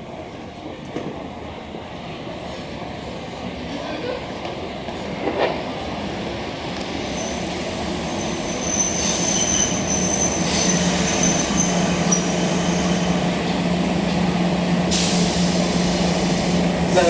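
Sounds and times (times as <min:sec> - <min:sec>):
train low drone: 0:00.0 - 0:17.0
brake and wheel squeals: 0:07.0 - 0:13.2.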